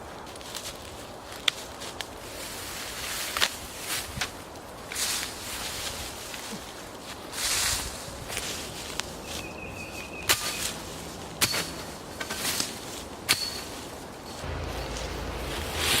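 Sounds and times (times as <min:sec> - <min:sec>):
rustling in brush: 0:00.0 - 0:16.0
low hum: 0:14.3 - 0:16.0.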